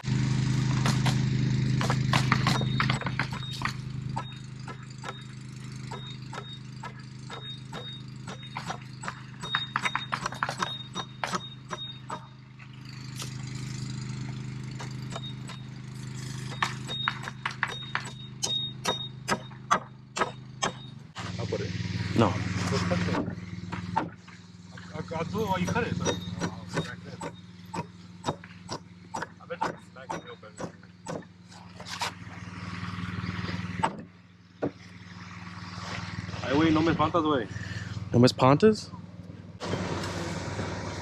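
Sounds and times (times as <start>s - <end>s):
tools tapping and clicking: 1.8s - 12.3s, 14.2s - 21.0s, 23.2s - 32.0s.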